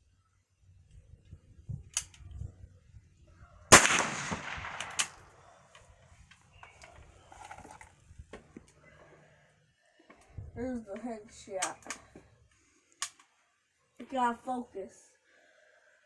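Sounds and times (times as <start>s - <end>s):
rifle shot: 3.7s - 5.4s.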